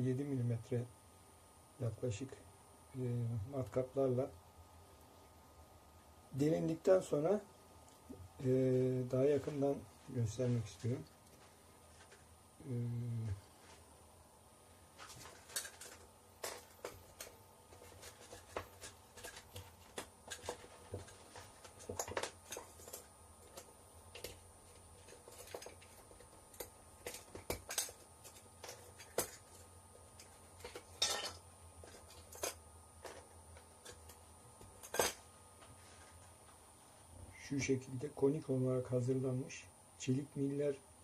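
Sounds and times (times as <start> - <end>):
faint steady hum: 0.0 - 41.0
small hard pieces clicking and clinking: 15.0 - 35.2.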